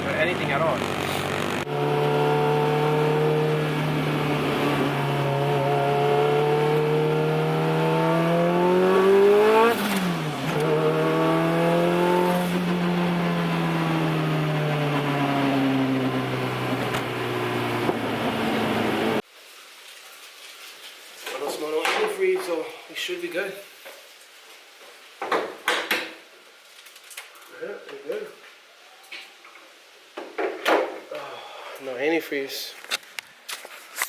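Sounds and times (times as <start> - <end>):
turbocharged car engine: 0.0 - 19.2
rush of noise from throttle closing: 0.5 - 7.2, 8.9 - 11.0, 15.0 - 19.2.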